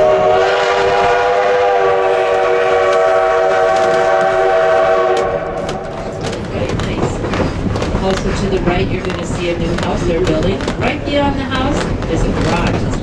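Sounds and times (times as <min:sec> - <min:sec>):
steam locomotive chime whistle: 0:00.0 - 0:05.6.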